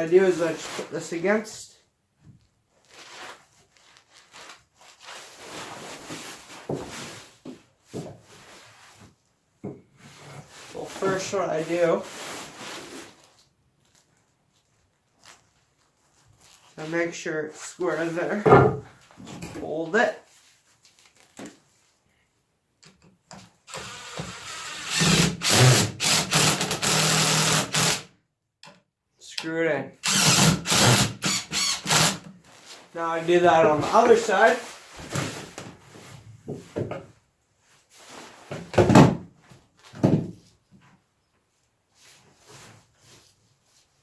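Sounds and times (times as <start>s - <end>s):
rustling and handling noises: 2.1s - 23.6s, 32.3s - 44.0s
power drill driving screw into wood: 23.7s - 28.1s, 30.0s - 32.3s.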